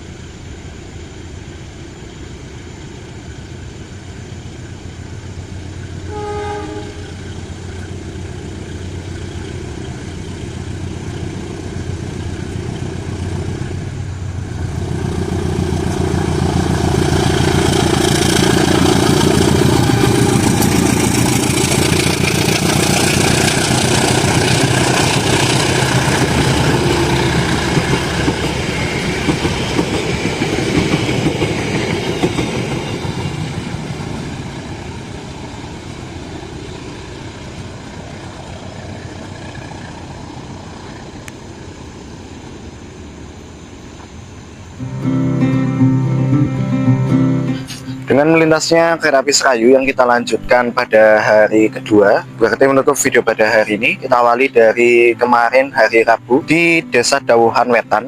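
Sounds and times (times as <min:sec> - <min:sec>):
train wheels rolling: 0:00.0 - 0:45.0
locomotive engine hum: 0:00.0 - 0:58.0
train horn blast: 0:06.0 - 0:07.3, 0:19.0 - 0:20.8
clickety-clack over rail joints: 0:07.3 - 0:40.0.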